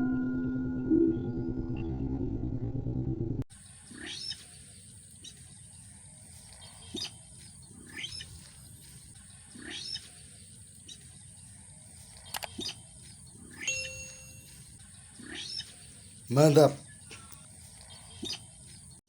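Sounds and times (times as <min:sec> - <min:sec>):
sharp clicks: 0:12.2 - 0:12.8.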